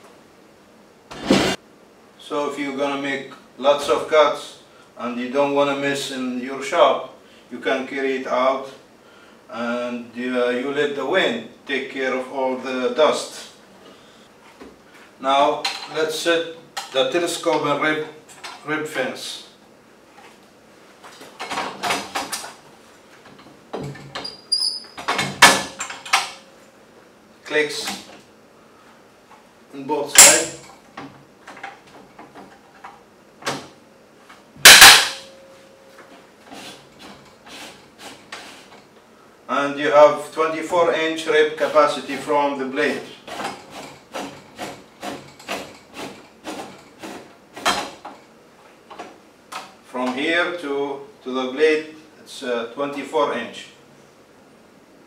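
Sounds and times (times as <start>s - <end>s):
high squeak: 24.2s - 25.0s
fence sliding scrapes: 36.5s - 38.8s.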